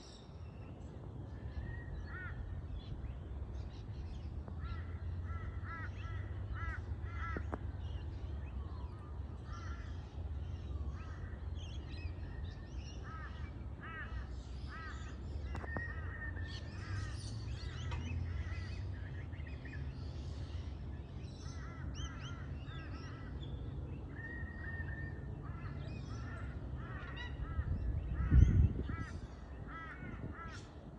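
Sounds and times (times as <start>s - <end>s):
steady low rumble: 0.5s - 30.9s
birds calling: 1.3s - 30.9s.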